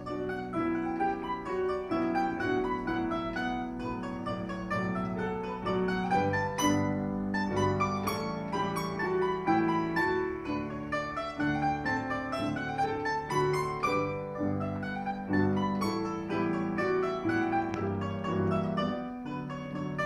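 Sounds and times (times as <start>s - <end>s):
piano accompaniment: 0.0s - 20.0s
plucked domra melody: 0.0s - 20.0s.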